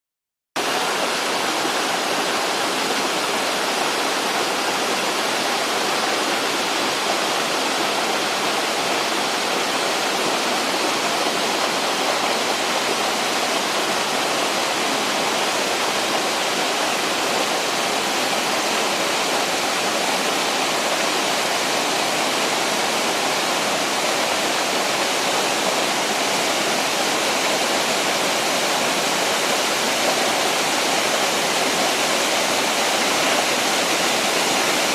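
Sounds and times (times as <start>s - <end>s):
waterfall rushing into pool: 0.6s - 34.9s.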